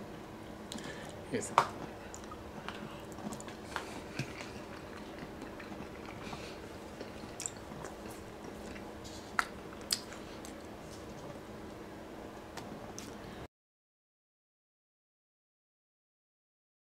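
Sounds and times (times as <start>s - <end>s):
faint steady hum: 0.0s - 13.5s
person chewing food: 1.8s - 11.4s
mouth clicks and smacks: 2.1s - 10.6s.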